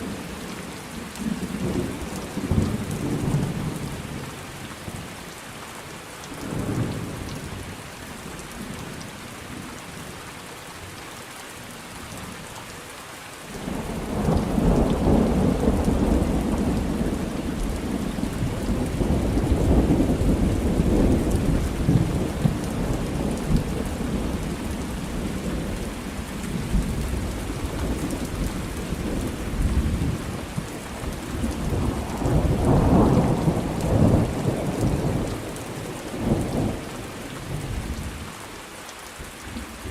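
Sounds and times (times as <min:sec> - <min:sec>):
steady rain: 0:00.0 - 0:39.9
rolling thunder: 0:13.6 - 0:37.0.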